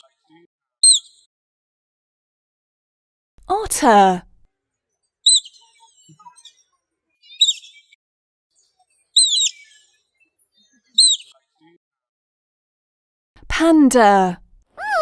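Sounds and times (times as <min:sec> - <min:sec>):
otter squeaking chirps: 0:00.8 - 0:01.2, 0:05.2 - 0:06.6, 0:07.2 - 0:07.9, 0:09.2 - 0:09.9, 0:11.0 - 0:11.3.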